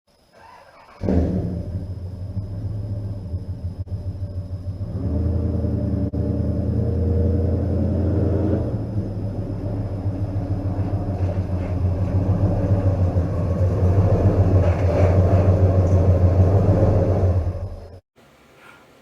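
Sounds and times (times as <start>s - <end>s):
pickup truck engine rumbling: 1.0s - 18.0s.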